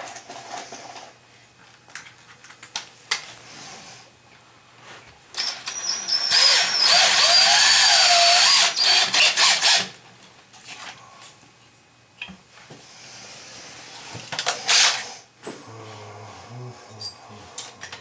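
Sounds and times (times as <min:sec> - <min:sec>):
power drill whining: 0:05.4 - 0:10.0, 0:14.4 - 0:15.1.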